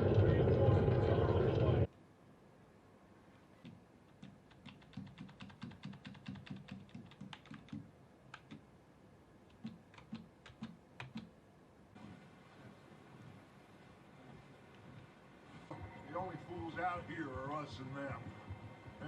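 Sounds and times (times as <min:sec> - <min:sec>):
computer keyboard clicking: 0:03.6 - 0:08.7, 0:09.5 - 0:11.3.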